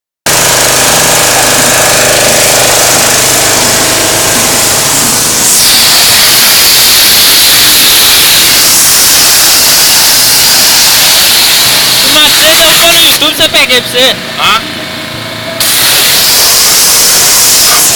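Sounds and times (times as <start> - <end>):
pressure washer motor hum: 0.3 - 17.9
hissing water jet: 0.8 - 13.0, 15.6 - 17.9.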